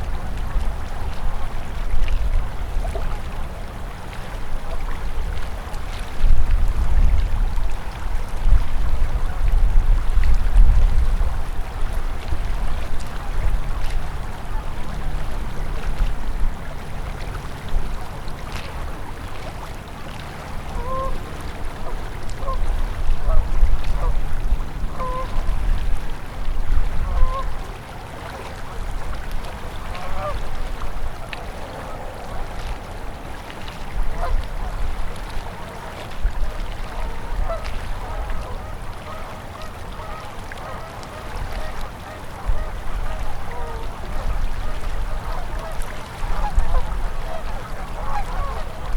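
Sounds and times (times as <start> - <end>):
river flowing: 0.0 - 48.9
waterfowl honking and quacking: 19.4 - 25.9, 26.9 - 33.3, 34.1 - 36.1, 36.7 - 48.9.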